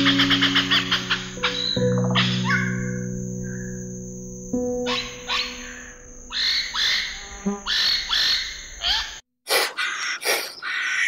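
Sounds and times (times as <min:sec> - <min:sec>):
steady high background tone: 0:00.0 - 0:07.4.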